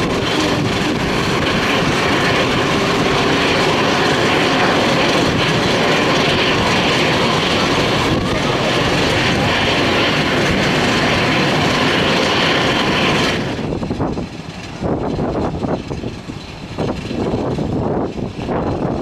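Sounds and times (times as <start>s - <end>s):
jet engines running: 0.0s - 19.0s
wind buffeting microphone: 0.0s - 19.0s.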